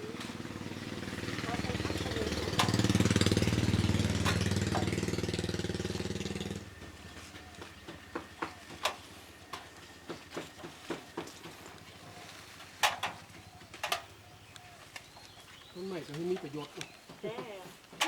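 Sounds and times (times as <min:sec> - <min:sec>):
small engine rattling: 0:00.0 - 0:18.0
light clicks and knocks: 0:12.7 - 0:15.4.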